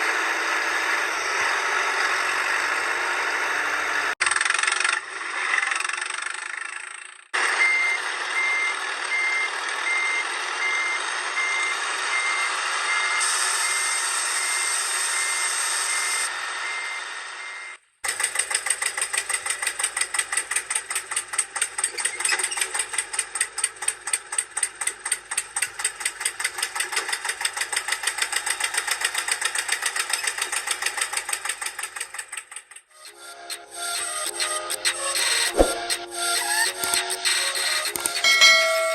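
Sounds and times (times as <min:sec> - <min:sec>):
engine chugging: 0:00.0 - 0:13.1
engine noise: 0:00.0 - 0:16.7, 0:35.3 - 0:36.1
reversing alarm beeping: 0:07.6 - 0:17.8, 0:37.7 - 0:38.9.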